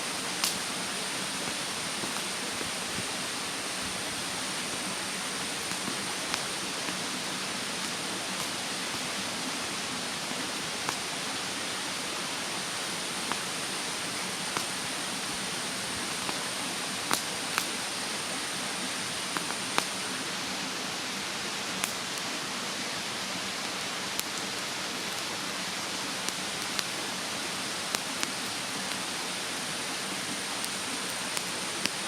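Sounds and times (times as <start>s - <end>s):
mountain stream rushing: 0.0s - 32.0s
wood fire crackling: 0.1s - 20.4s, 21.8s - 32.0s
sharp pops from burning wood: 0.3s - 0.7s, 1.3s - 3.1s, 5.4s - 7.0s, 7.8s - 8.6s, 10.8s - 11.0s, 13.1s - 14.9s, 16.0s - 17.8s, 19.3s - 20.0s, 21.8s - 22.0s, 24.1s - 25.4s, 26.2s - 27.0s, 27.7s - 29.2s.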